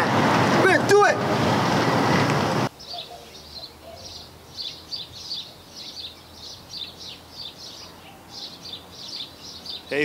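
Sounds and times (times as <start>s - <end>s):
loud rush of noise: 0.0s - 2.7s
small birds chirping: 2.7s - 10.0s.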